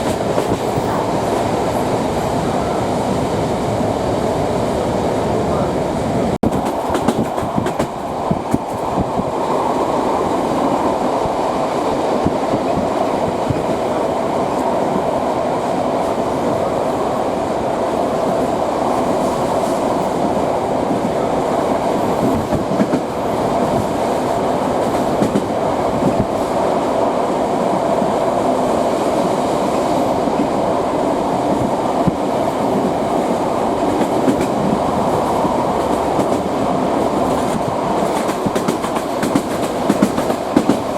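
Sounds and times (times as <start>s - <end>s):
train running rumble: 0.0s - 40.9s
wheels clacking over rail joints: 30.0s - 40.9s.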